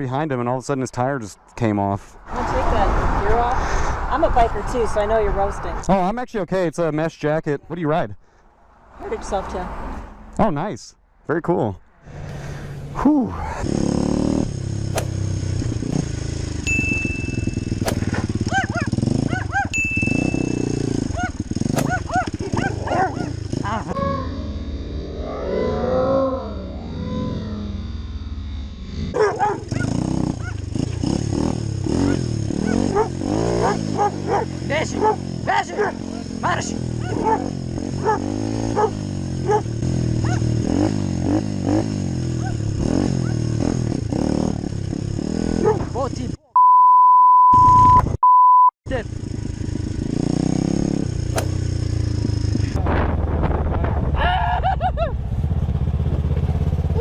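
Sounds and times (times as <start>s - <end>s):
low engine hum: 14.0s - 40.6s, 50.8s - 57.0s
motorcycle engine idling: 14.5s - 24.0s, 48.9s - 52.8s, 55.1s - 57.0s
dog barking: 18.5s - 19.8s, 21.1s - 23.4s, 29.2s - 30.6s, 32.1s - 36.1s, 37.0s - 40.5s, 42.4s - 42.6s, 45.6s - 45.9s
high electronic beeps: 19.8s - 20.7s, 46.5s - 48.7s.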